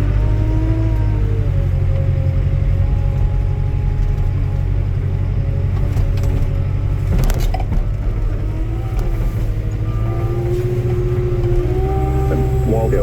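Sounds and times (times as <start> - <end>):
skid steer engine humming: 0.0 - 13.0
rising whine: 11.4 - 13.0.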